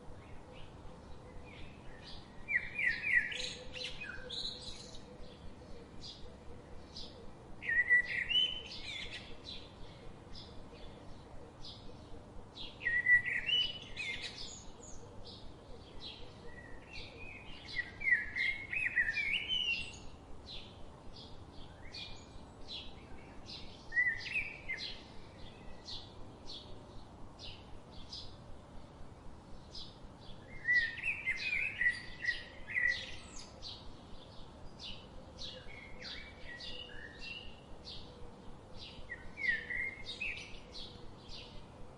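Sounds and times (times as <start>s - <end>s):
bird warbling song: 0.2s - 28.4s, 29.6s - 41.8s.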